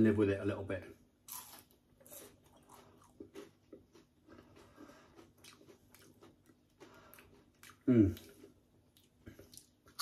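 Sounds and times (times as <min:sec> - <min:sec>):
person chewing crispy food: 0:01.2 - 0:10.0.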